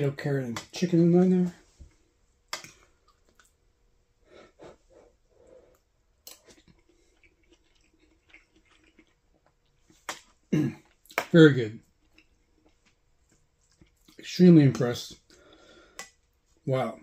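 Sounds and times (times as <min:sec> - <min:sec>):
person chewing food: 0:02.5 - 0:03.6, 0:04.4 - 0:14.2.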